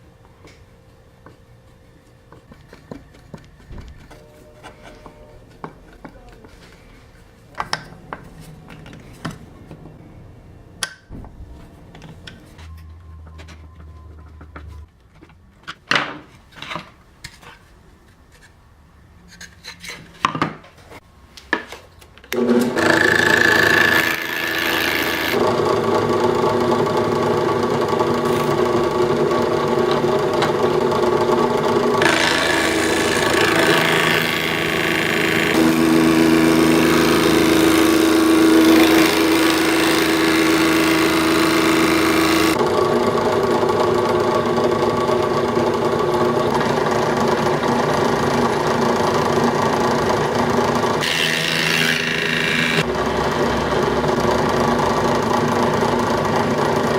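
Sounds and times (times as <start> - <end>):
drill press planer cutting wood: 22.3 - 56.9.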